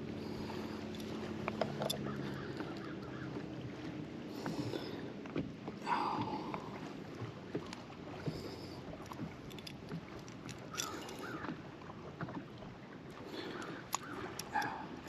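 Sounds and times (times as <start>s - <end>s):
kayak handling sounds: 0.6s - 3.2s, 4.3s - 11.6s, 13.2s - 15.0s
small clicks and knocks: 9.0s - 11.4s
water washing: 13.2s - 15.0s.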